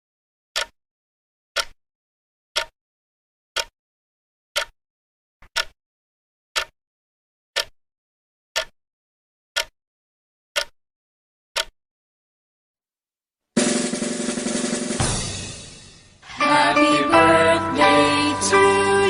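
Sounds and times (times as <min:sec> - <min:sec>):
clock ticking: 0:00.6 - 0:00.8, 0:01.6 - 0:01.8, 0:05.4 - 0:05.8, 0:06.6 - 0:06.8.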